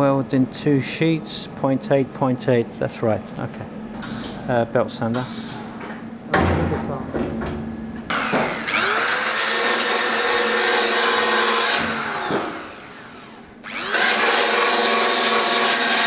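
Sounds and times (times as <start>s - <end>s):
belt sander whining: 8.1s - 16.0s.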